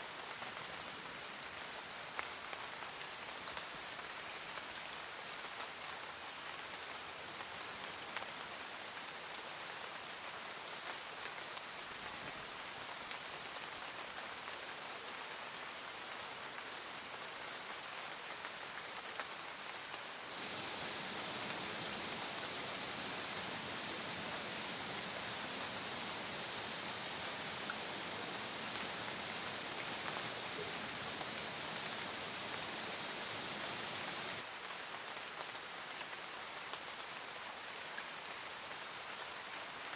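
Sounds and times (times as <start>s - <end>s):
loud hissy rain: 0.0s - 39.9s
steady rain falling: 0.0s - 39.9s
raindrops ticking: 20.4s - 34.4s.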